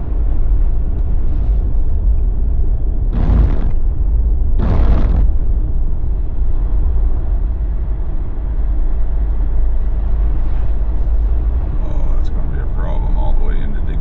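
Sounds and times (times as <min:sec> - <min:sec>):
road and wind noise rumble: 0:00.0 - 0:14.0.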